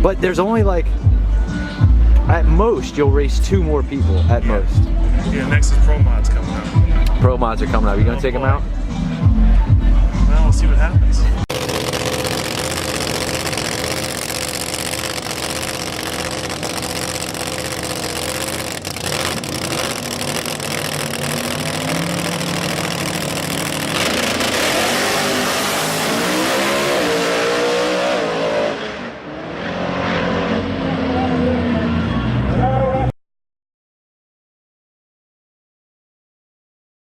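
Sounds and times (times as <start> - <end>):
drag car engine revving: 11.5 - 32.1.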